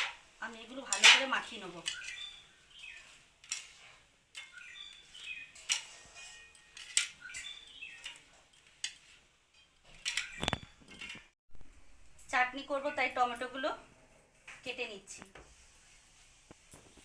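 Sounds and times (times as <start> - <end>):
bird chirping: 1.8 - 3.2, 4.4 - 5.7, 6.8 - 8.4, 9.8 - 11.2.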